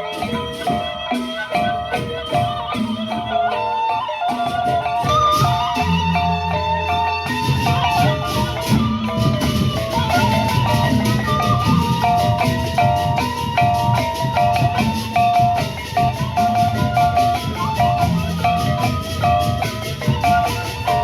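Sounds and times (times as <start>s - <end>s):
large drums beating: 4.4s - 21.0s.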